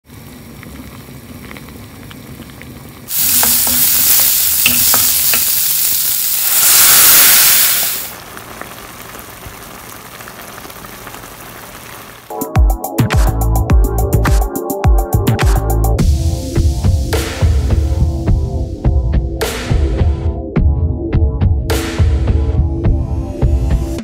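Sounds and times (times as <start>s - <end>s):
beans bubbling in pot: 0.0s - 12.3s
loud sizzle in pan: 0.0s - 12.3s
music: 12.3s - 24.0s.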